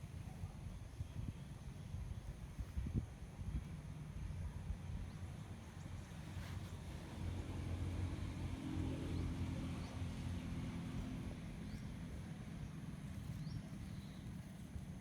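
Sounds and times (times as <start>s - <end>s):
engine humming at low speed: 4.7s - 15.0s.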